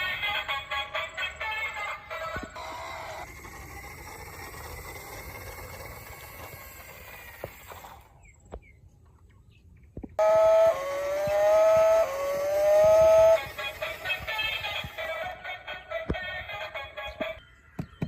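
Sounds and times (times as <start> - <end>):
electronic tone stepping in pitch: 10.2 - 15.0.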